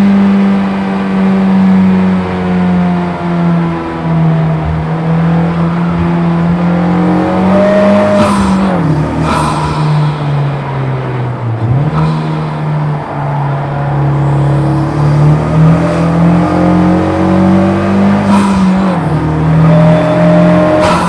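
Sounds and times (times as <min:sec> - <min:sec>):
car engine running hard: 0:00.0 - 0:21.0.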